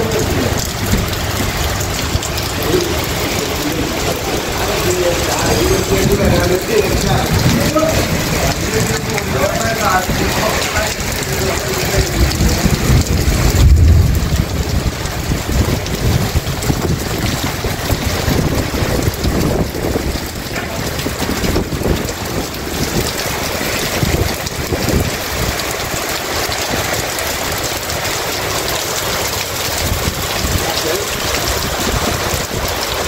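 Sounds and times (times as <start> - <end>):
deep low rumble: 0.0 - 25.2
heavy rain on pavement: 0.0 - 33.0.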